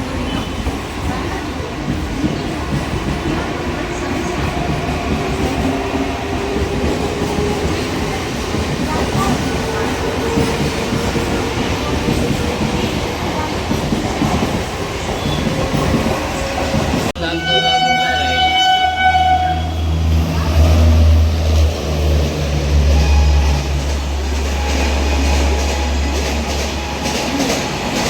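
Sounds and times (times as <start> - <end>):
deep train rumble: 0.0 - 28.0
train passing at speed: 0.0 - 28.0
train horn: 17.2 - 21.1, 22.7 - 27.7.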